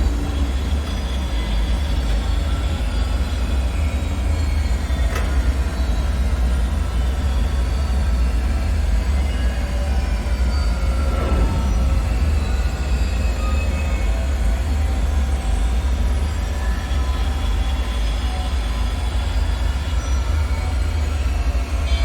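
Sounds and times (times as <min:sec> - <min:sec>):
deep rumble: 0:10.4 - 0:15.3
eerie falling tones: 0:10.5 - 0:14.2.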